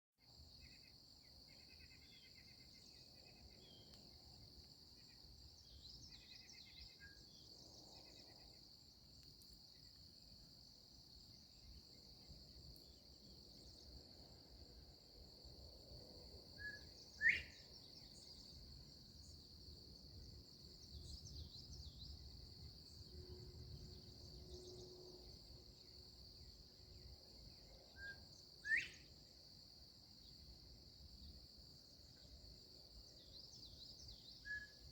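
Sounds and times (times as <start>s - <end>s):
quail two-note whistle call: 16.6s - 17.6s
faint bird twittering: 16.6s - 18.5s, 27.9s - 29.1s, 33.2s - 34.9s.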